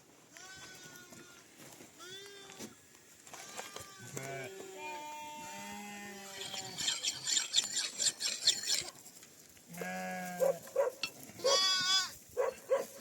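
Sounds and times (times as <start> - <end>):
sheep bleating: 3.4 - 6.8, 9.8 - 10.6, 11.4 - 12.2.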